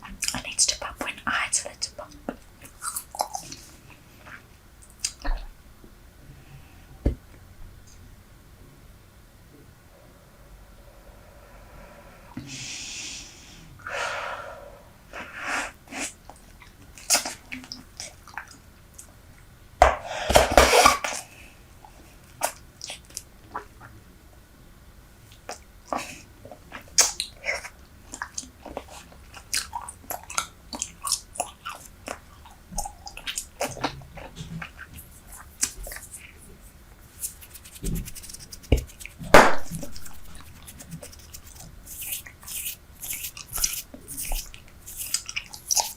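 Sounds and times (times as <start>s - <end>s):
gum chewing smacks: 26.7s - 36.4s, 37.2s - 45.9s.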